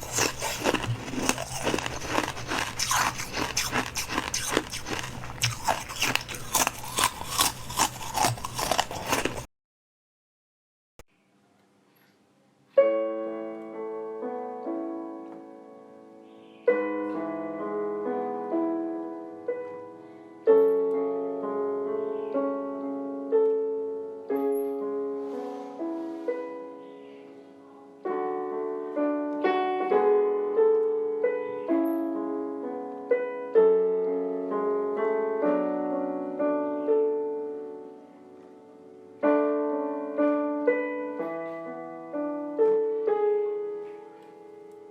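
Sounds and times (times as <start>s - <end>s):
solo piano melody: 12.7s - 44.9s.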